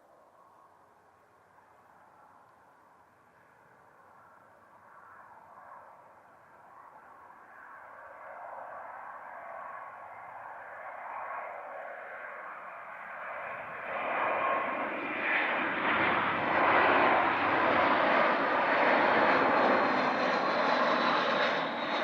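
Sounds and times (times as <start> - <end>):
jet airliner engine noise: 3.3 - 22.0.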